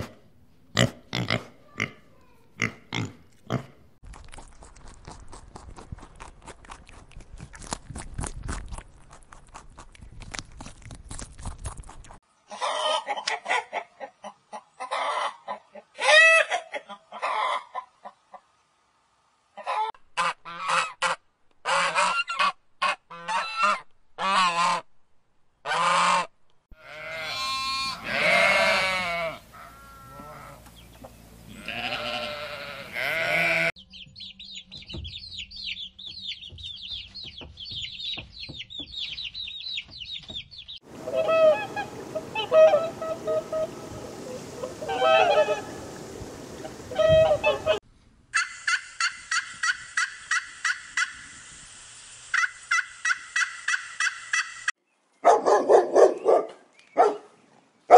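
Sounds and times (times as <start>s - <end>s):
sheep bleating: 26.8s - 30.6s, 31.5s - 33.7s.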